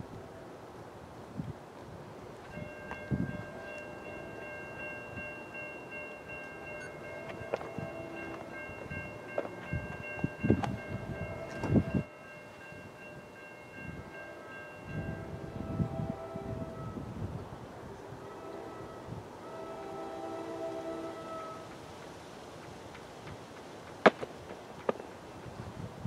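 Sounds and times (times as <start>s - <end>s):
train approaching: 0.0s - 26.0s
crossing warning bells chiming: 2.4s - 17.2s, 18.0s - 21.8s
faint train horn: 2.5s - 12.7s, 13.8s - 21.8s.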